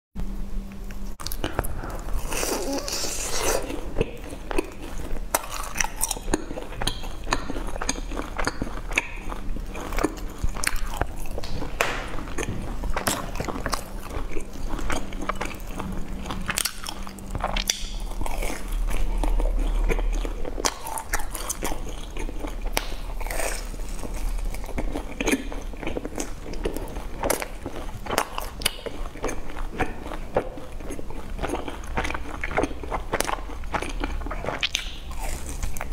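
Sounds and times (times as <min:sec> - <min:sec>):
faint low hum: 0:00.2 - 0:35.9
crunchy chewing: 0:01.1 - 0:35.9.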